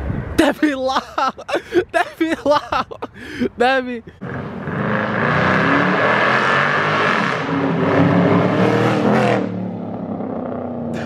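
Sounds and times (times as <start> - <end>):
car engine accelerating hard: 4.2 - 11.0.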